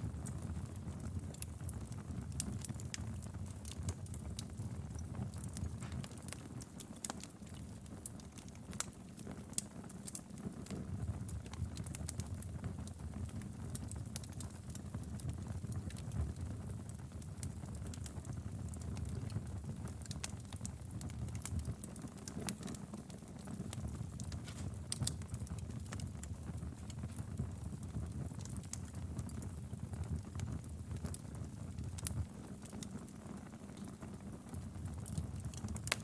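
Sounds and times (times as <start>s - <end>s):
wood fire crackling: 0.0s - 36.0s.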